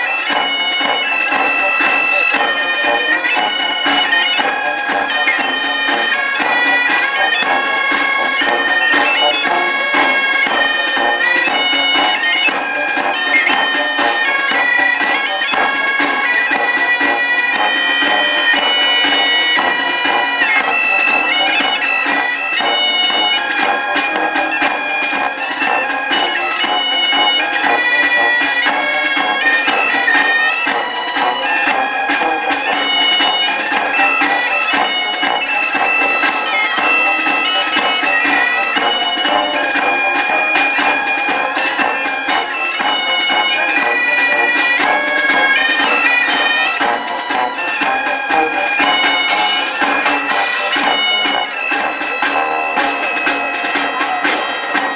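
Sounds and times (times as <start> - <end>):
wind instrument melody: 0.0 - 54.9.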